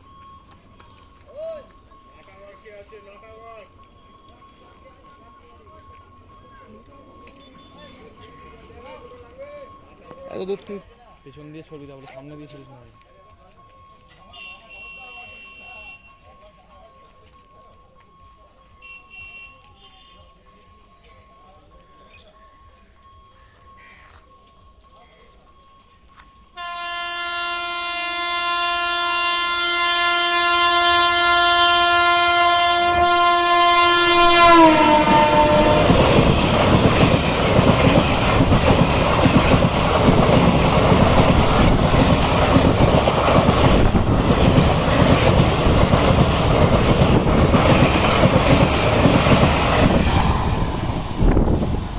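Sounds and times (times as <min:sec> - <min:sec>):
train horn: 0:14.3 - 0:16.3, 0:18.8 - 0:20.3, 0:26.6 - 0:36.4
train wheels clattering over rails: 0:34.5 - 0:51.9.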